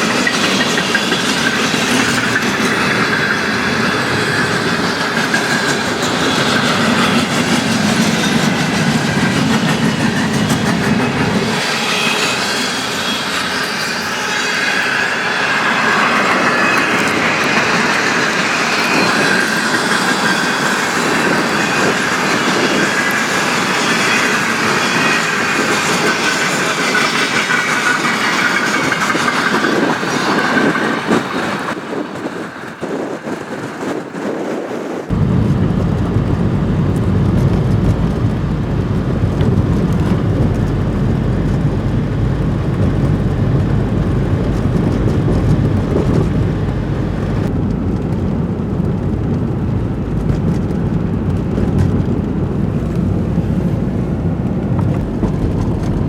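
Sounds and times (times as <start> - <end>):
train wheels squealing: 0.0 - 34.9
railcars clattering: 0.0 - 56.0
steady low rumble: 35.1 - 56.0.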